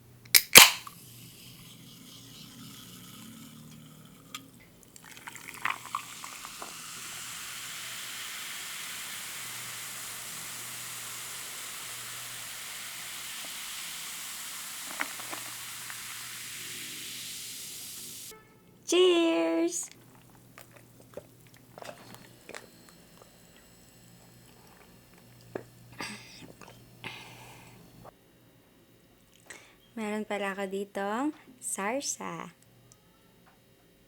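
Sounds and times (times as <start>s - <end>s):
sharp click: 0.3s - 0.9s
drink pouring into a glass: 0.9s - 18.3s.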